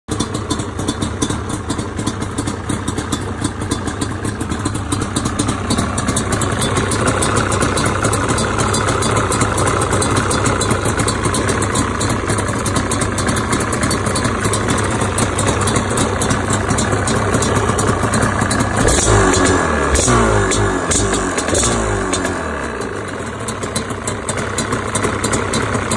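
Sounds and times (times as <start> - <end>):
two-stroke engine idling: 0.1 - 25.9.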